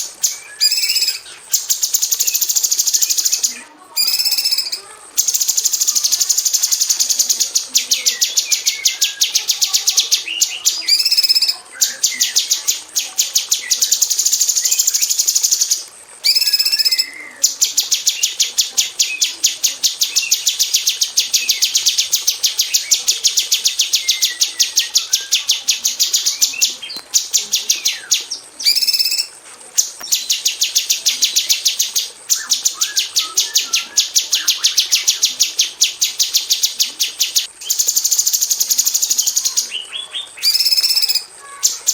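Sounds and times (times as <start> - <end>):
bird calling in rapid rattle: 0.0 - 41.9
whistled bird notes: 0.0 - 41.9.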